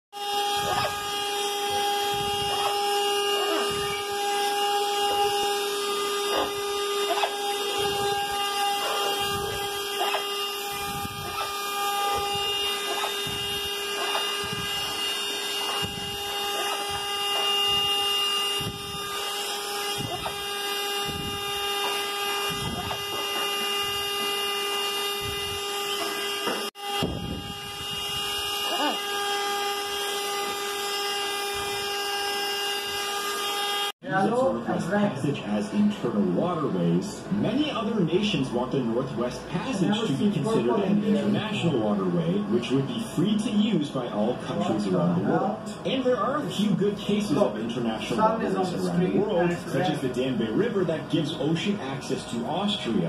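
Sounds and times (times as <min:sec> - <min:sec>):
vacuum cleaner running: 0:00.2 - 0:34.4
parrot calling: 0:28.6 - 0:29.3.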